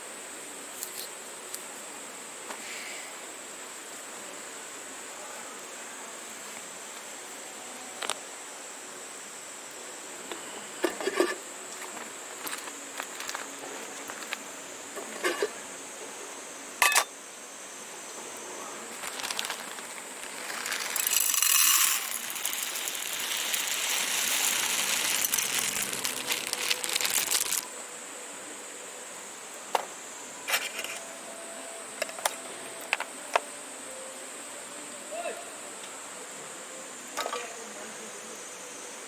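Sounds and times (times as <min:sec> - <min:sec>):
hissing rush: 0:18.9 - 0:27.7
wood fire crackling and popping: 0:19.0 - 0:27.7.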